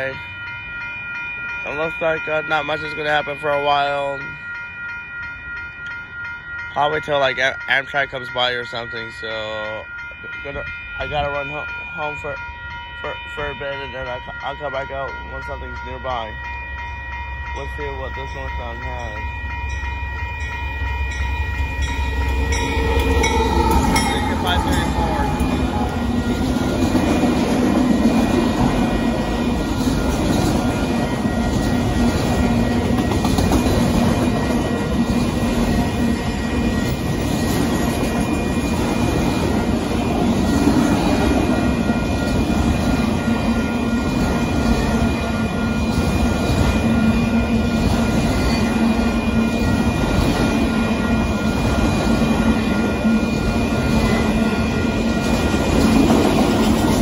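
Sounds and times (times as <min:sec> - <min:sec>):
freight train wheels rumbling: 0:00.0 - 0:57.0
thin high tones: 0:08.6 - 0:33.6.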